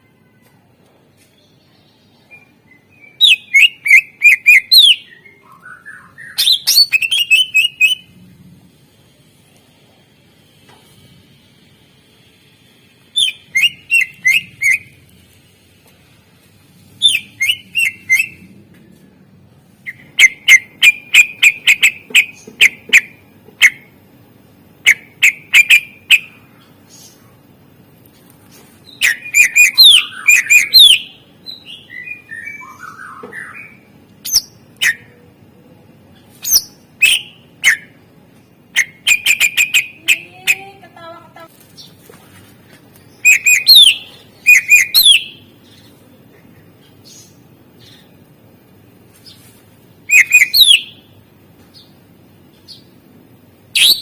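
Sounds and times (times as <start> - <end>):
leafbird singing: 1.4 - 8.1, 13.1 - 15.0, 17.0 - 18.5, 19.8 - 24.0, 24.8 - 27.3, 28.7 - 35.2, 36.1 - 38.0, 38.7 - 42.1, 42.9 - 48.3, 49.2 - 53.0, 53.7 - 54.0.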